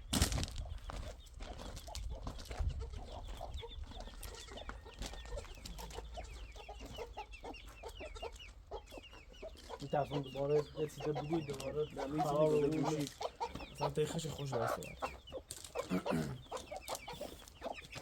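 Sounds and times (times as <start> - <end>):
chickens clucking and peeping: 0.4 - 18.0.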